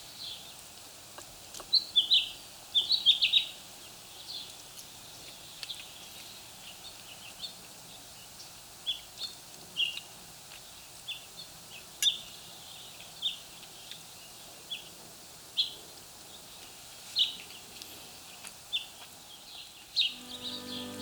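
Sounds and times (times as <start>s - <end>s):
faint outdoor background noise: 0.0s - 21.0s
small bird chirping: 18.7s - 21.0s.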